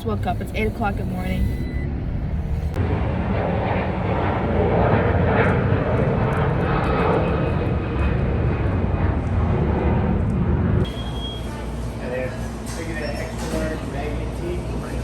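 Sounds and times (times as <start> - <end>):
vehicle engine and road noise: 0.0 - 2.8.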